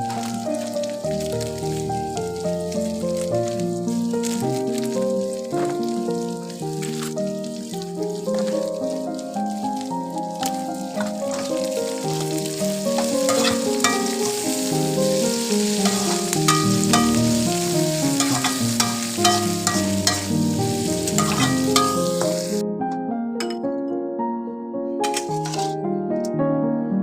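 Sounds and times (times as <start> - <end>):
food sizzling in a pan: 0.0 - 22.6, 25.0 - 25.7
instrumental background music: 0.0 - 27.0
spatula scraping a pan: 11.0 - 11.7, 13.0 - 22.6, 25.0 - 25.7.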